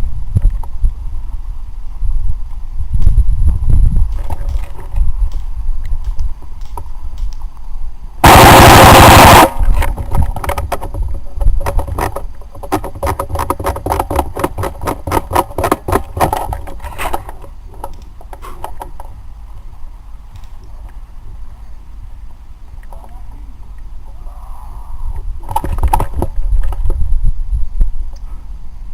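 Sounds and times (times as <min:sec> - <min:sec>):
airsoft gun full-auto burst: 0:08.2 - 0:09.6.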